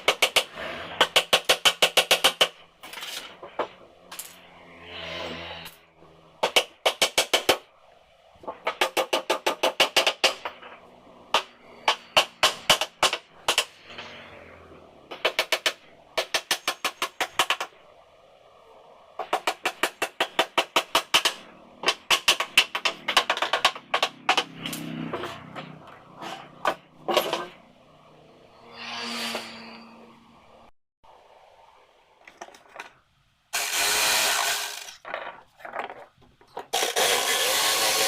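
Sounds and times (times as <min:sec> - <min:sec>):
hammer striking nails into wood: 0:00.0 - 0:02.6, 0:08.6 - 0:10.6, 0:11.3 - 0:13.8, 0:19.2 - 0:25.3.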